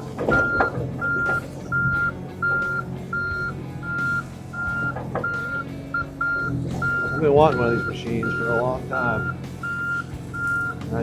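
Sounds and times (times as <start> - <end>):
backup alarm beeping: 0.0 - 11.0
diesel engine humming: 0.0 - 11.0
machine knocks: 4.8 - 5.6.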